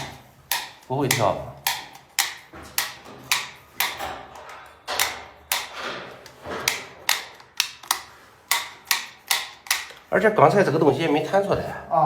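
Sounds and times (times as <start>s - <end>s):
light switch clicking: 0.0s - 4.0s, 6.7s - 10.0s.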